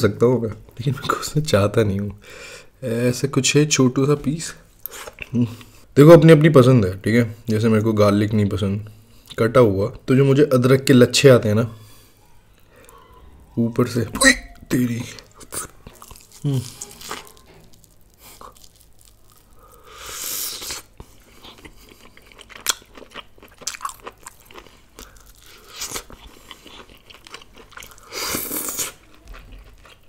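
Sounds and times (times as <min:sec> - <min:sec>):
chewing with wet smacks and crunches: 0:15.0 - 0:19.5, 0:20.6 - 0:30.0.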